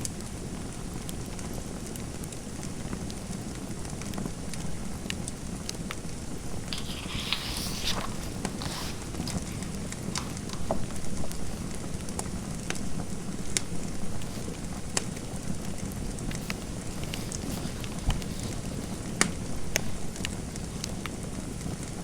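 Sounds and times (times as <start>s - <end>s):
fireplace fire crackling: 1.0s - 22.0s
scratchy rustle: 6.7s - 11.8s, 13.5s - 21.1s.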